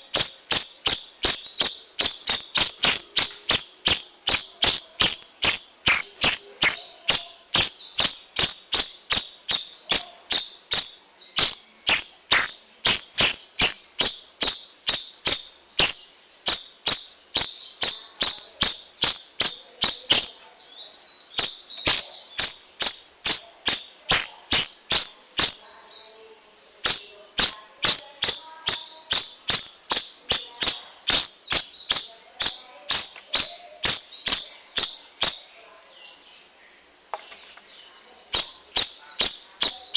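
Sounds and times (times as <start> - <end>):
bird singing high chirps: 0.0 - 36.5, 37.1 - 39.9.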